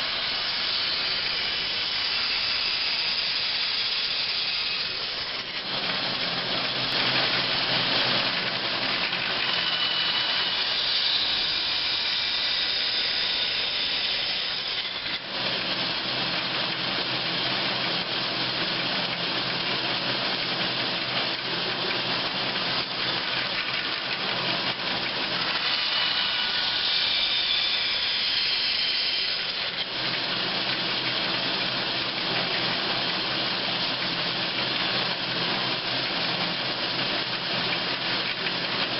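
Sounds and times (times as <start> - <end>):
saw blade cutting wood hiss: 0.0 - 15.8, 24.4 - 34.9
band saw running: 0.0 - 38.9.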